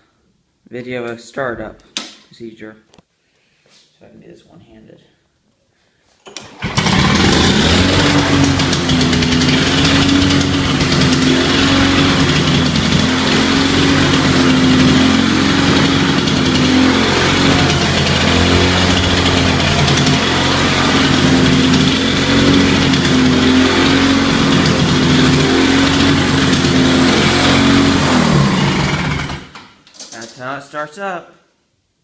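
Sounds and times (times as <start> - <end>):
recoil starter pull: 6.2 - 30.2
lawn mower engine running: 6.3 - 29.6.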